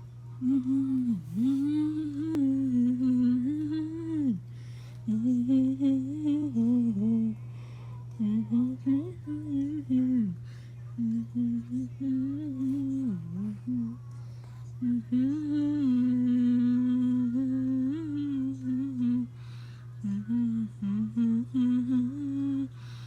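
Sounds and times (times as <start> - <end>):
young person humming: 0.4 - 7.4, 11.0 - 14.0, 14.8 - 19.4, 20.0 - 22.8
person breathing: 4.5 - 5.1, 7.4 - 8.1, 10.4 - 10.9, 19.3 - 20.0, 22.7 - 23.0.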